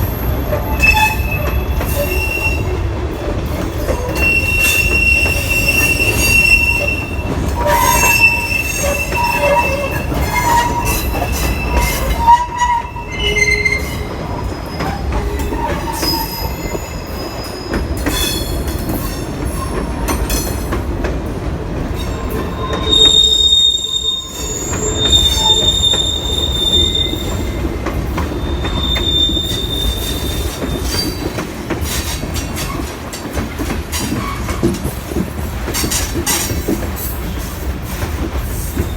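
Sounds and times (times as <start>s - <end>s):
freight cars rolling on rails: 0.0s - 38.9s
wheels squealing: 3.7s - 19.8s, 22.0s - 27.7s.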